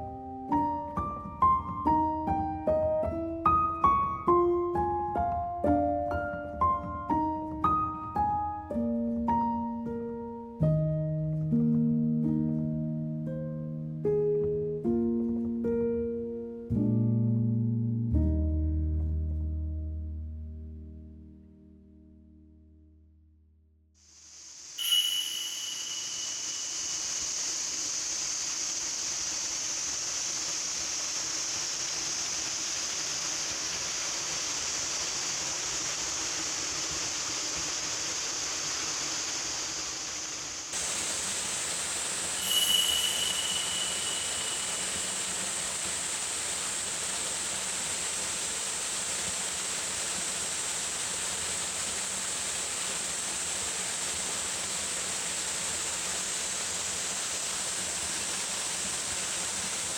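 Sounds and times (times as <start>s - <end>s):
brief high-pitched tone: 24.8s - 27.2s, 42.4s - 45.6s
small waterfall splashing: 25.8s - 59.9s.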